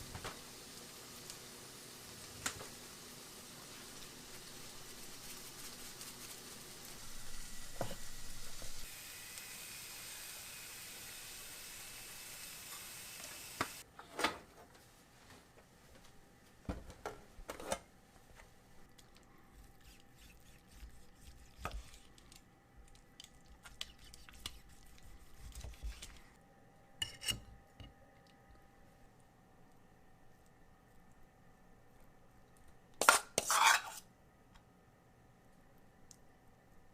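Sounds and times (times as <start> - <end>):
sizzling hiss: 0.0 - 13.8
utensils clinking on pans: 33.0 - 34.0.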